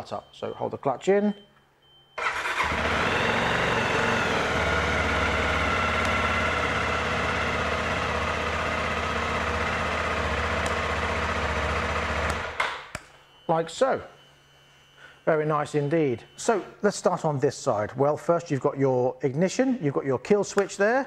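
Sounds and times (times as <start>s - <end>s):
motorcycle engine idling: 2.3s - 12.5s.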